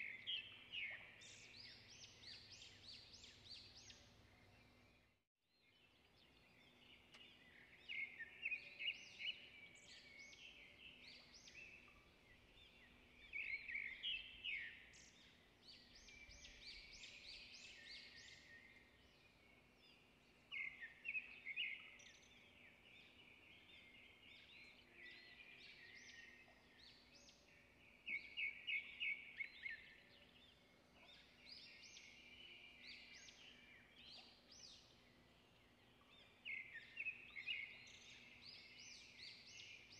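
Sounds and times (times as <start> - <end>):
bird chirps: 0.0 - 39.9
songbird singing: 0.0 - 39.9.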